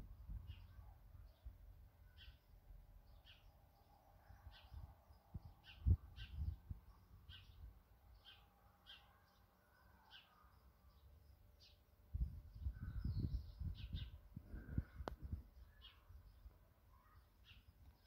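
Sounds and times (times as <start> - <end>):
small bird chirping: 0.3 - 18.0
low gusty rumble: 12.1 - 15.6.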